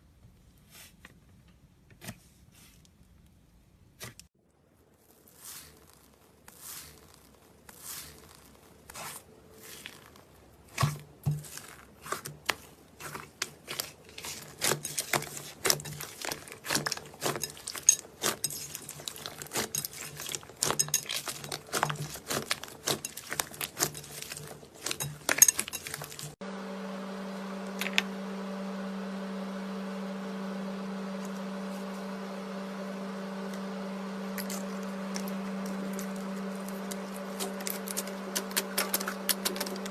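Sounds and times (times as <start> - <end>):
steady hum: 26.2 - 39.9.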